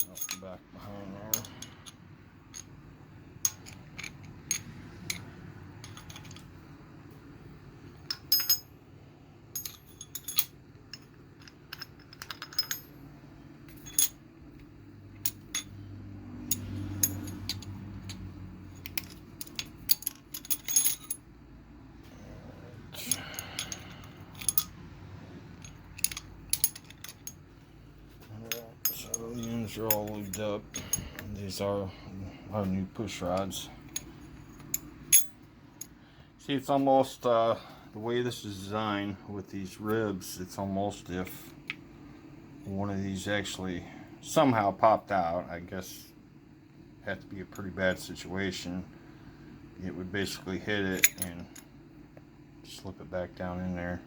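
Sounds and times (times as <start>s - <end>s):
low steady hum: 0.0s - 54.0s
metal pushrods clinking: 23.0s - 24.8s, 25.6s - 27.4s, 28.5s - 31.4s, 50.9s - 51.3s.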